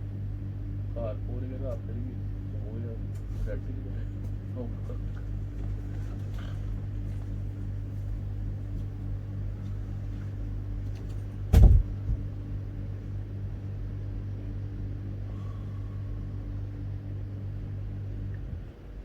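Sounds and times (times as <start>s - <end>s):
loud thump: 11.5s - 12.3s.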